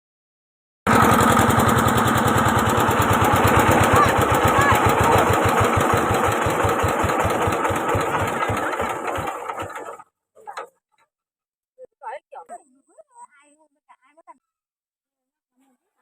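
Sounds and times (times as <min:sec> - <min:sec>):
small engine running: 0:00.9 - 0:10.7.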